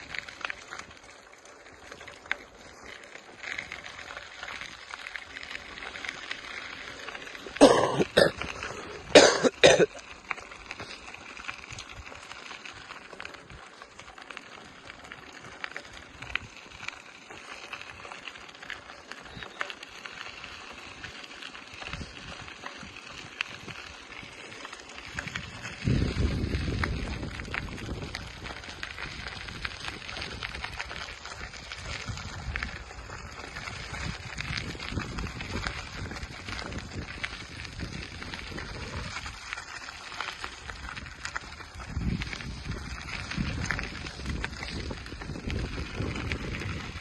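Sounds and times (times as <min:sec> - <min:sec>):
person coughing: 0:07.6 - 0:08.5, 0:09.1 - 0:10.0.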